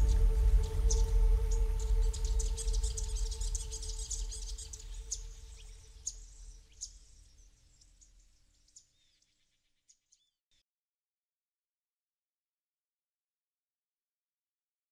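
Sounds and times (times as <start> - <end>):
faint low tone and rumble: 0.0 - 6.8
birds chirping: 0.0 - 7.3.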